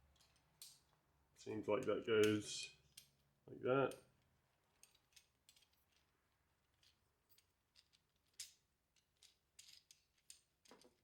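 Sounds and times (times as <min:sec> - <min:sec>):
small tool parts clicking: 0:00.1 - 0:00.9, 0:02.2 - 0:03.2, 0:04.7 - 0:06.1, 0:06.7 - 0:11.0.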